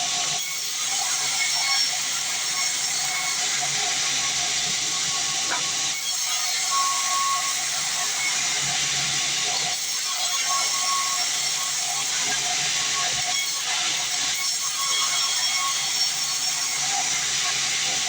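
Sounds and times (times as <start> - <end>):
saw blade cutting through log: 4.9 - 6.6.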